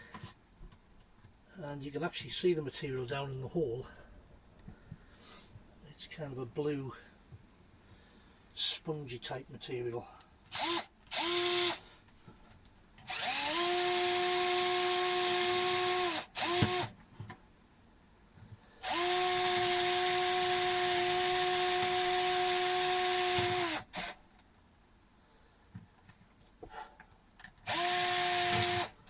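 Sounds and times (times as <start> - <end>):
electric drill boring through wood: 10.5 - 11.8, 13.1 - 16.9, 18.8 - 24.2, 27.6 - 29.0.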